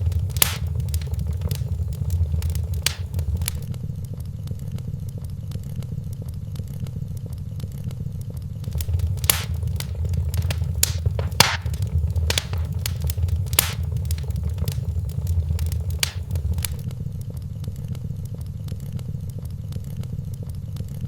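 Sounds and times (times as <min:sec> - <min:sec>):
fire crackling and popping: 0:00.0 - 0:03.7, 0:08.6 - 0:16.8
low rumble of flame: 0:00.0 - 0:03.7, 0:08.6 - 0:16.8.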